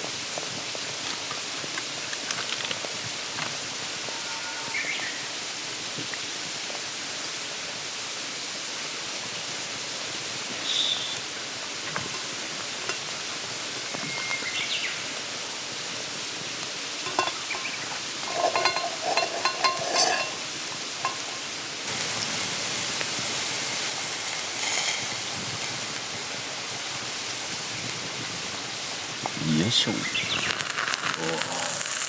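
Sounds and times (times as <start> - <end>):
mountain stream running: 20.3 - 32.0.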